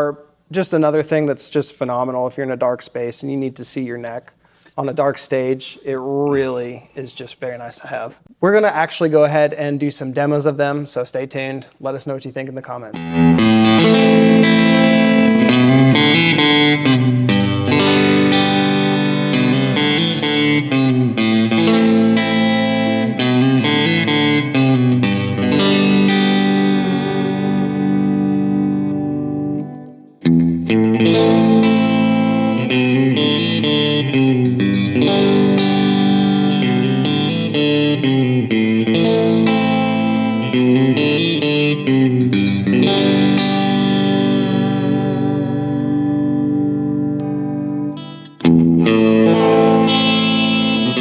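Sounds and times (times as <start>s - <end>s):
electric guitar with effects: 12.9s - 51.0s.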